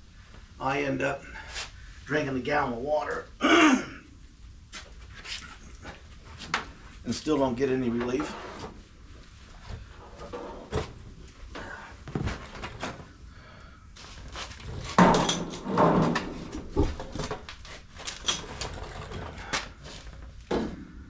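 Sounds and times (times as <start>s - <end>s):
objects knocking and clattering: 14.6s - 20.8s.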